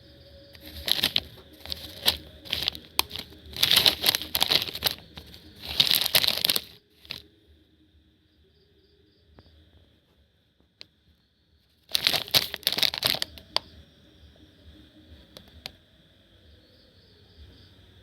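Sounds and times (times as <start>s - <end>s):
crinkly rustling: 0.5s - 7.2s, 11.7s - 13.6s.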